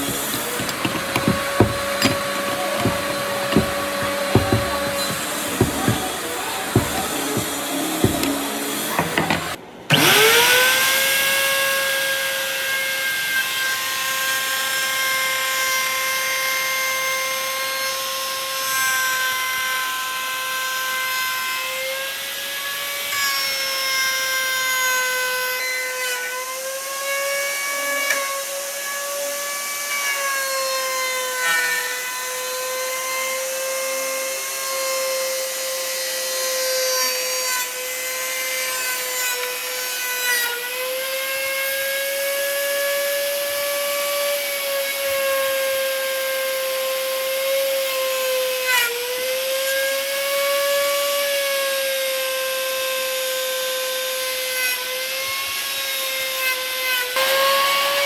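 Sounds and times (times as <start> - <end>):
tool grinding wood: 0.0 - 10.4, 57.2 - 58.0
power tool motor whining: 0.0 - 10.8, 57.2 - 58.0.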